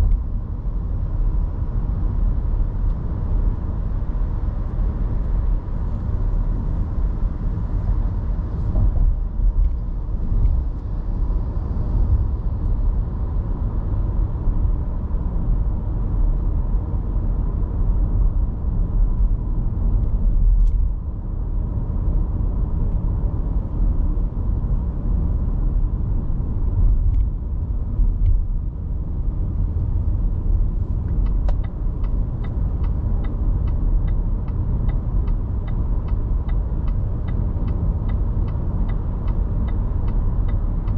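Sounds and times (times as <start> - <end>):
car road and engine rumble: 0.0 - 40.9.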